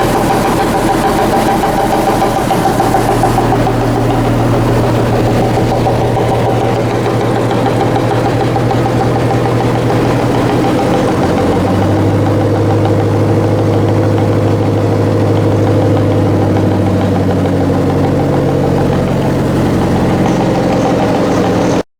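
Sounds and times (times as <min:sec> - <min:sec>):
locomotive engine running: 0:00.0 - 0:21.9.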